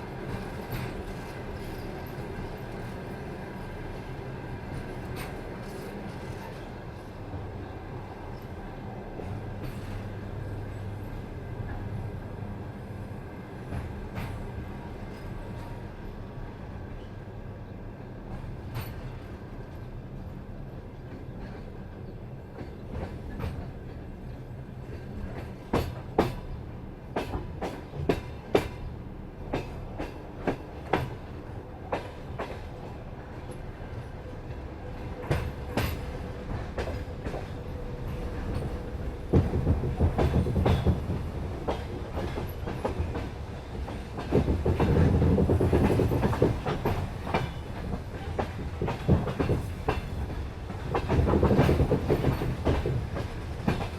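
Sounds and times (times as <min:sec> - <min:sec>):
train rumble: 0:00.0 - 0:53.9
train wheels clacking over rail joints: 0:21.1 - 0:28.9, 0:29.5 - 0:53.9.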